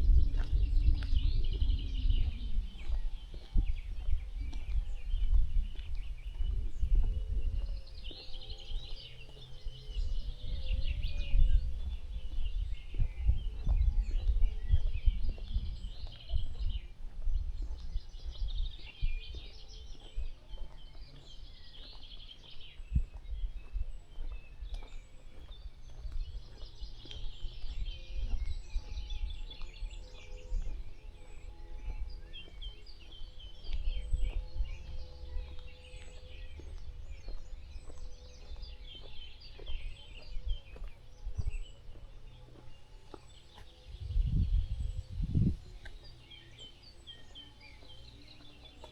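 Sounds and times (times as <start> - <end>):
low rumble: 0.0 - 19.4, 42.7 - 48.3
songbirds chirping and singing: 0.0 - 48.9.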